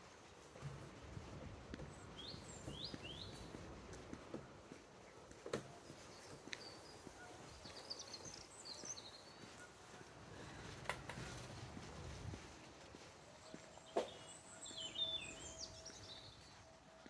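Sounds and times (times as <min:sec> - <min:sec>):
songbird chirps: 0:13.4 - 0:16.6.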